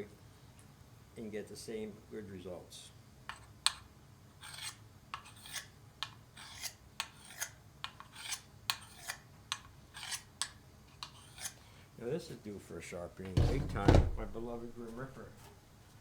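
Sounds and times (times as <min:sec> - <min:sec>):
knife scraping on sharpener: 0:04.4 - 0:05.7, 0:06.4 - 0:11.6.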